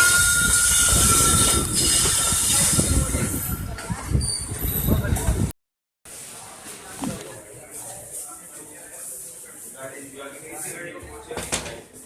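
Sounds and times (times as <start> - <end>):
high-pitched wheel squeal: 0.0 - 5.0
train rumbling on rails: 0.0 - 5.5.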